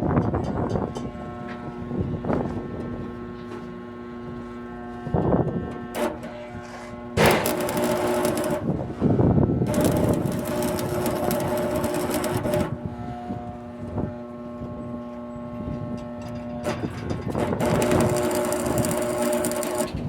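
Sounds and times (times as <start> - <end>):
welding machine hum: 5.7 - 14.5, 16.0 - 20.0
welding arc crackling: 7.2 - 8.9, 9.6 - 12.8, 16.6 - 20.0.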